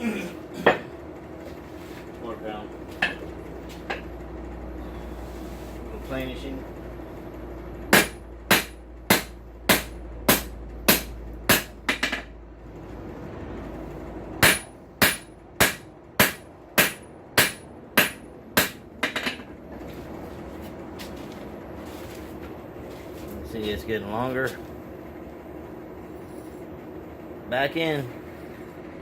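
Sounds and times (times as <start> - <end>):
hammer striking steel on anvil: 7.9 - 12.3, 14.4 - 19.5.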